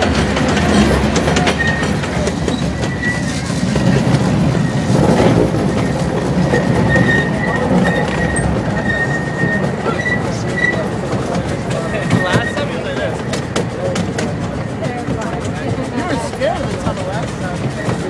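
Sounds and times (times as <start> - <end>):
wheels rumbling on rails: 0.0 - 18.0
high wheel squeal: 1.4 - 11.0, 11.8 - 13.0.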